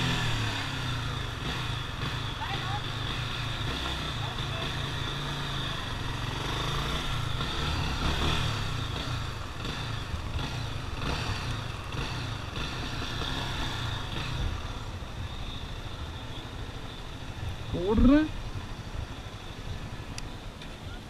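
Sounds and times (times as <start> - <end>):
motorcycle engine at low revs: 0.0 - 21.0.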